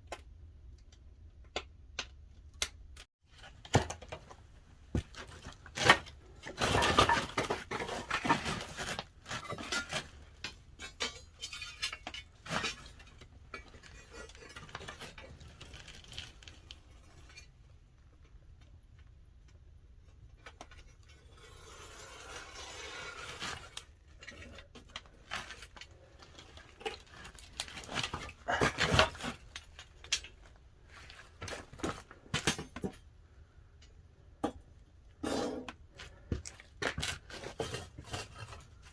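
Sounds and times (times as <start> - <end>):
firewood clattering and knocking: 3.6 - 13.8, 31.4 - 33.1.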